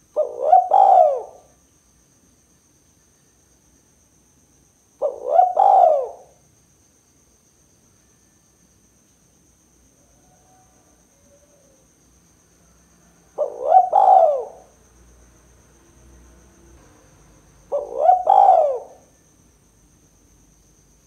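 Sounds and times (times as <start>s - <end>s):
dove cooing: 0.2s - 1.5s, 5.0s - 6.4s, 13.3s - 14.7s, 17.7s - 19.1s.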